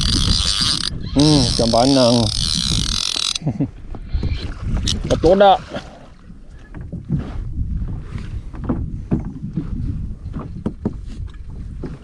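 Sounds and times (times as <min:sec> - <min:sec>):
wind rumble on microphone: 0:00.0 - 0:12.0
knocks and taps on kayak: 0:08.5 - 0:12.0.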